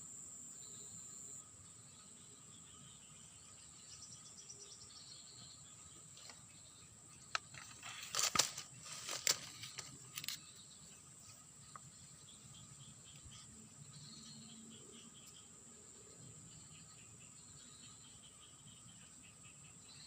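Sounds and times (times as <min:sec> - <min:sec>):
insects trilling: 0:00.0 - 0:20.0
sharp clicks and rustles: 0:07.3 - 0:10.6.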